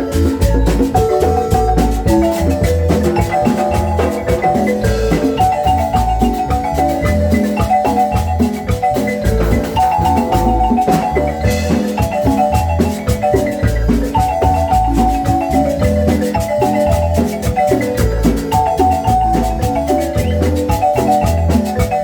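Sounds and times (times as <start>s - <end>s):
low bass: 0.0s - 16.9s
marimba music: 0.0s - 22.0s.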